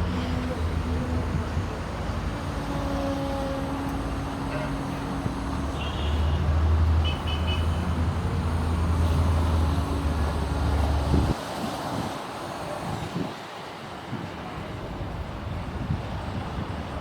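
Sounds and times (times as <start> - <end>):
vehicle engine rumbling: 0.0 - 11.4.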